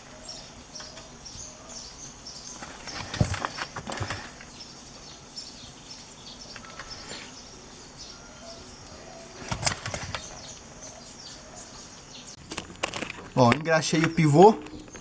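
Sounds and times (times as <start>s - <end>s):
sharp clicks and knocks: 12.4s - 15.0s.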